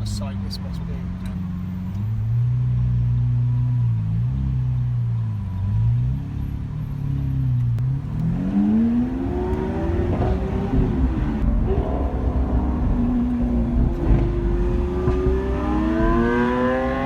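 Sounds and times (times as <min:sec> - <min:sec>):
car engine revving: 0:05.4 - 0:17.0.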